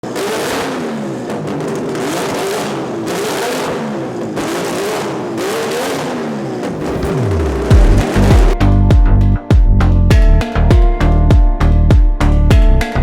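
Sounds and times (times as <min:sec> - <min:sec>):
car engine revving: 0:00.1 - 0:08.6.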